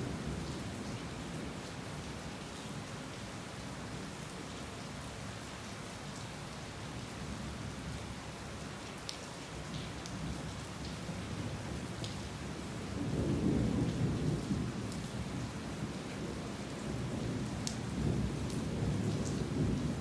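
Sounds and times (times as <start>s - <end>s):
heavy rain falling: 12.6s - 20.0s.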